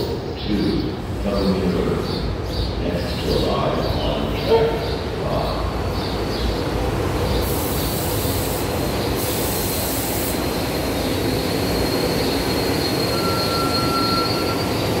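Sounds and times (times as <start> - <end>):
train wheels rumbling on rails: 0.0 - 15.0
hiss: 7.2 - 12.9
lower brake squeal: 11.3 - 15.0
high brake squeal: 11.4 - 15.0.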